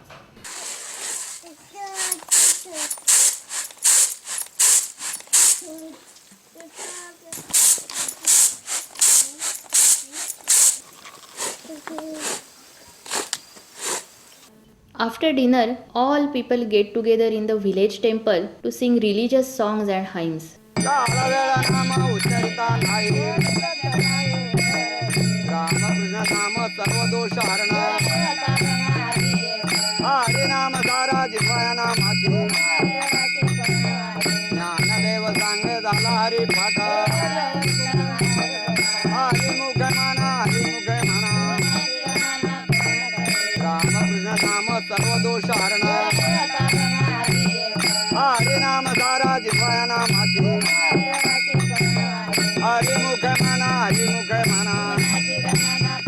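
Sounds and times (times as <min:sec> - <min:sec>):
jingling hand percussion: 0:00.5 - 0:14.0, 0:20.8 - 0:56.0
group singing a hymn: 0:20.8 - 0:51.6.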